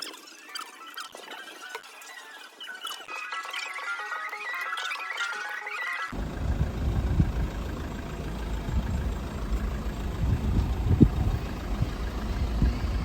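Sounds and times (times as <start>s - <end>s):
car rumbling on the move: 6.2s - 13.0s.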